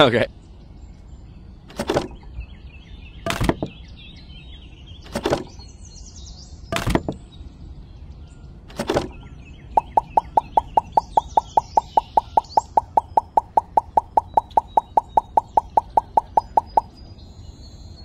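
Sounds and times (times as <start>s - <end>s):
faint birdsong: 0.0s - 18.0s.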